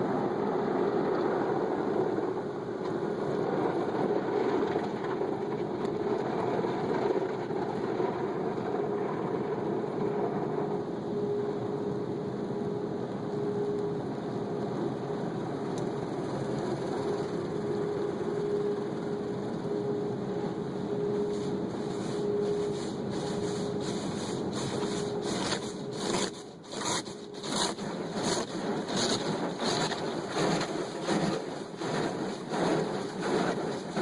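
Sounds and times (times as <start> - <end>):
car wash mechanical hum: 0.0 - 34.0.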